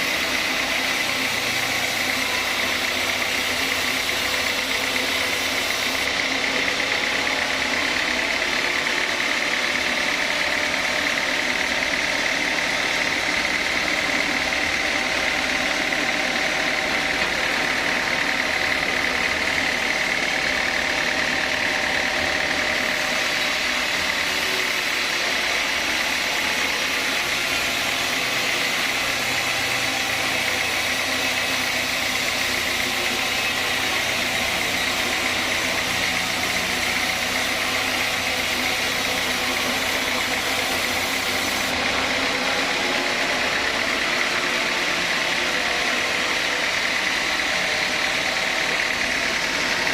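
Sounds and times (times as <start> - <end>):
sawmill saw running: 0.0 - 49.9.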